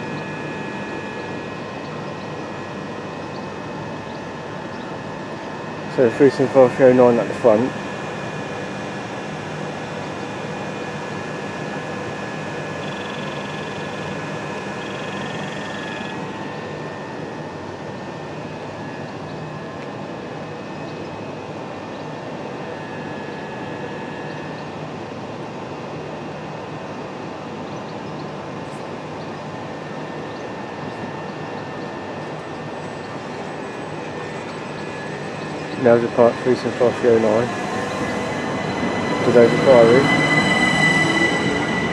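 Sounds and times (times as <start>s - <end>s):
diesel locomotive engine running: 0.0s - 18.0s, 28.4s - 41.9s
steady whine: 0.0s - 41.9s
high hiss: 32.8s - 41.9s.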